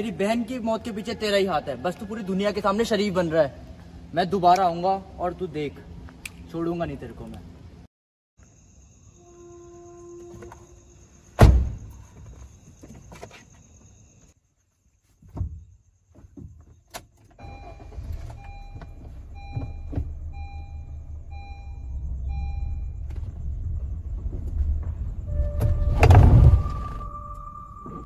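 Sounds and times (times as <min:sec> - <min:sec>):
car engine and road rumble: 0:16.1 - 0:27.5
short beeps: 0:17.4 - 0:23.0.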